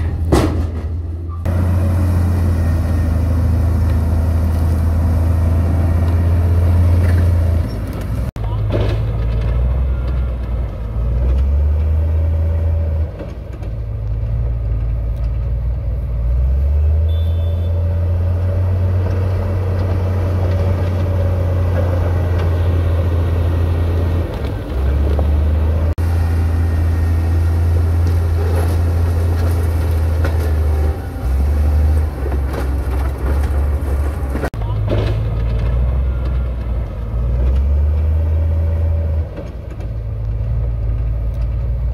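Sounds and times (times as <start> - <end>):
heavy diesel machinery rumbling: 0.0 - 41.9.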